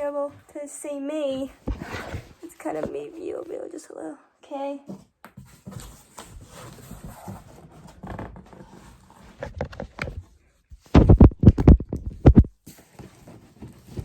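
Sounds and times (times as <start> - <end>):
loud bumps and knocks: 10.9 - 12.5.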